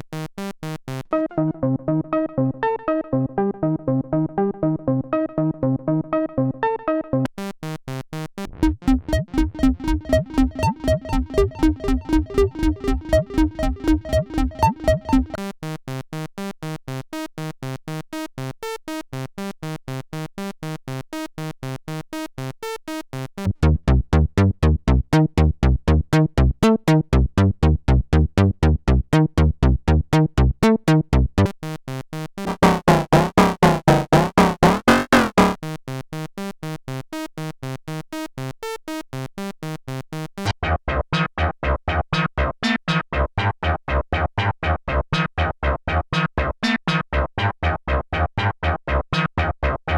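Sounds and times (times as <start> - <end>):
synthesizer sequenced line: 8.5 - 15.4, 23.5 - 31.5, 32.4 - 35.6.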